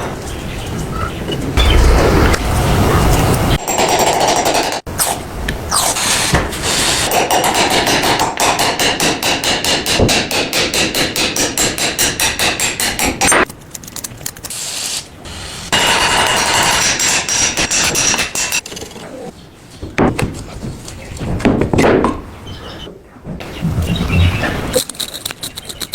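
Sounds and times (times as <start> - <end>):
rapid hammering: 7.1 - 13.4.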